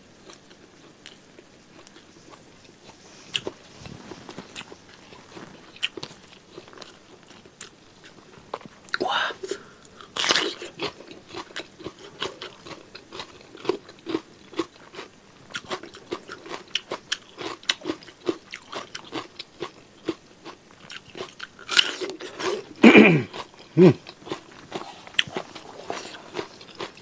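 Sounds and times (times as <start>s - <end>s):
crunchy cucumber bites: 10.0s - 22.6s
low vocal sound: 23.8s - 24.0s.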